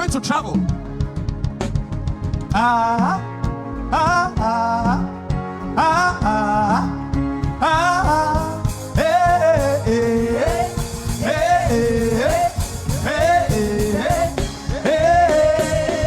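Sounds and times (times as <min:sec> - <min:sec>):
worship music: 0:00.0 - 0:16.0.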